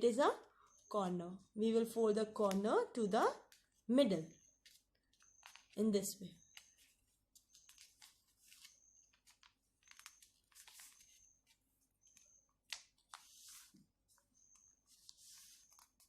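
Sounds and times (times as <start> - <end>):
paper being folded: 4.6 - 5.8, 6.5 - 16.0.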